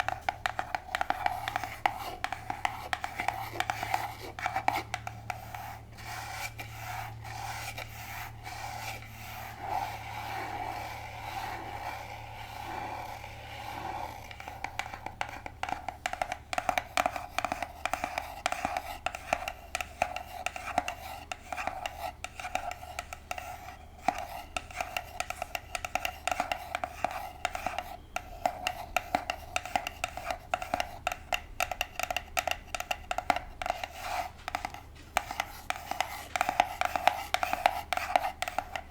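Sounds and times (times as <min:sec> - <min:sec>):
nails scratching on box: 0:00.0 - 0:19.5.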